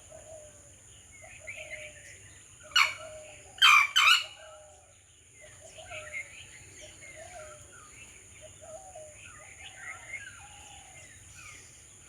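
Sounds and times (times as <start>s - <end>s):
junglefowl calling: 2.8s - 4.4s.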